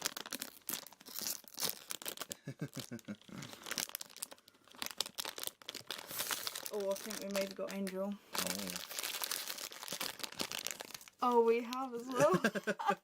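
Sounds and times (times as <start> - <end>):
plastic bag tearing and crinkling: 0.0 - 12.2.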